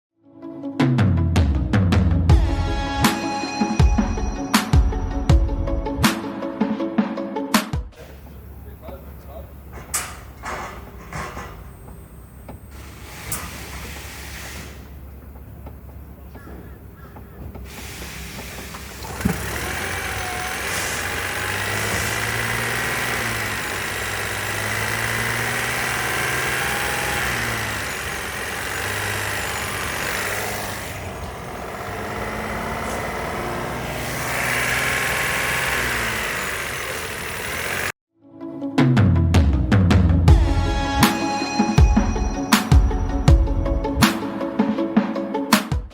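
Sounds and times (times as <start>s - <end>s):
car engine starting and revving: 8.0s - 38.0s.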